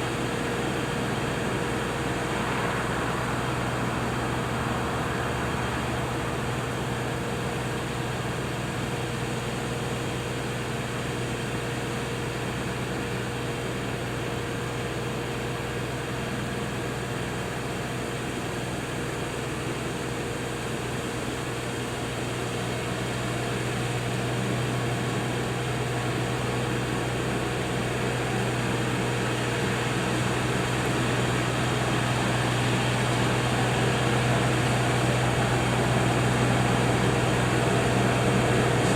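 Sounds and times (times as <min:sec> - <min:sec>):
tractor diesel engine running: 0:00.0 - 0:38.9
rotary cutter mowing brush: 0:22.3 - 0:38.9.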